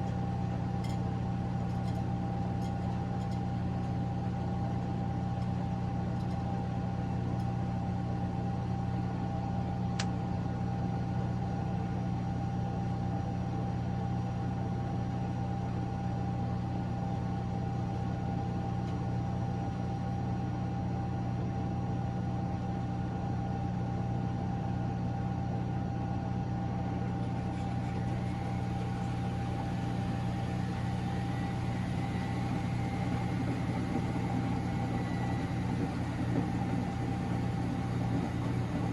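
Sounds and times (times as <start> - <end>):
washing machine humming and whining: 0.0 - 38.9
faint rising whine: 27.2 - 38.9.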